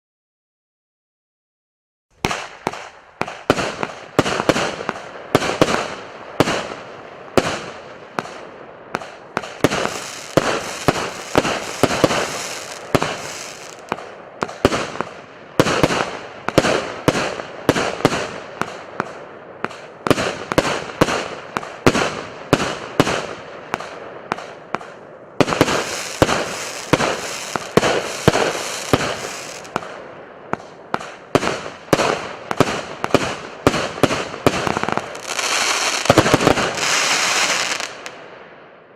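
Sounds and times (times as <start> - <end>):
firework crackling fizz: 9.4 - 14.0, 25.4 - 29.8, 34.2 - 38.1
firework launch bangs: 9.4 - 15.0, 25.4 - 29.8.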